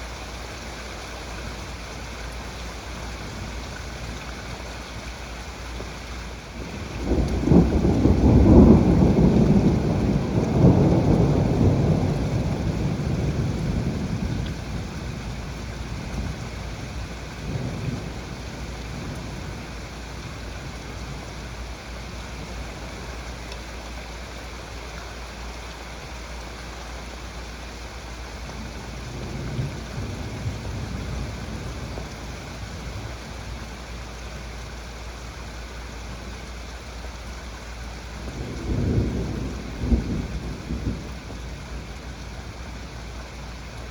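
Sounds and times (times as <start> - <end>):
heavy rain: 0.0 - 43.9
thunder rumbling: 6.6 - 21.4, 28.6 - 33.8, 38.1 - 43.9.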